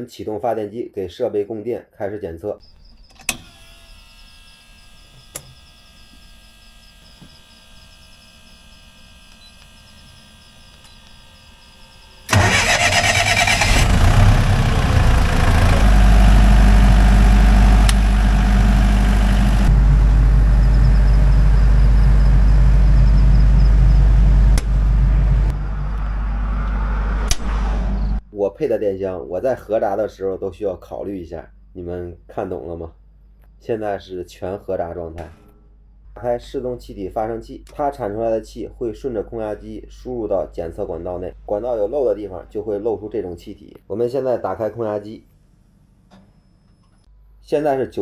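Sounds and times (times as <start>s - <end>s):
generator engine running: 8.6s - 28.2s.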